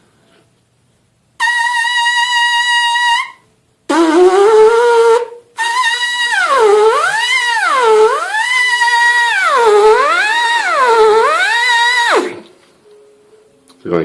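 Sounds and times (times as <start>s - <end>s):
trumpet mouthpiece buzzing: 1.4s - 12.6s.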